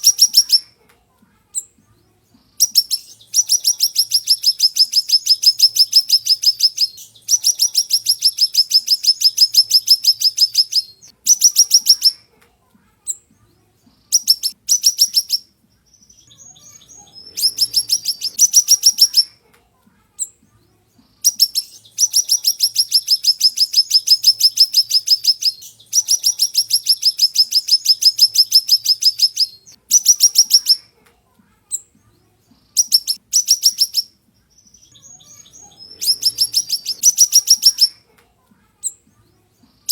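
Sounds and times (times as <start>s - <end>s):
songbird high-pitched trill: 0.0s - 0.7s, 2.6s - 12.2s, 14.2s - 19.3s, 21.2s - 30.8s, 32.7s - 38.0s.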